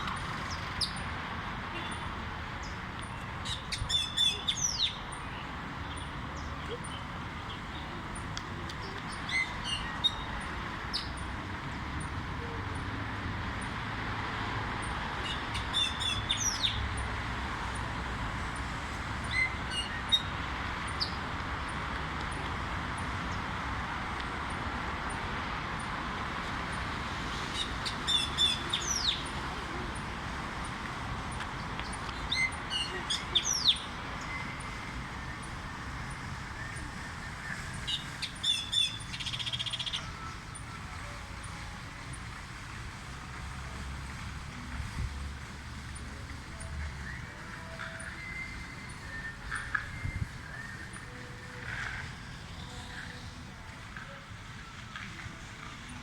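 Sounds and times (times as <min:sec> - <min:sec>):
steady background noise: 0:00.0 - 0:56.0
songbird calling: 0:03.4 - 0:08.2, 0:32.1 - 0:35.5, 0:36.6 - 0:40.6.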